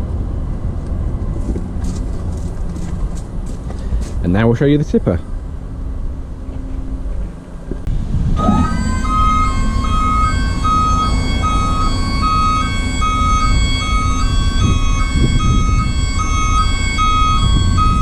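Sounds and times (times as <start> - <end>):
engine idling rumble: 0.0 - 18.0
hydraulic pump whine: 6.3 - 18.0
repeating warning beep: 8.4 - 18.0.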